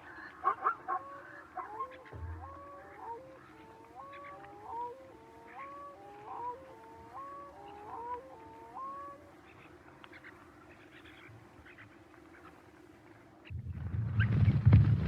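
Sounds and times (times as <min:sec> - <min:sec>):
birds whistling rising notes: 0:00.0 - 0:10.3.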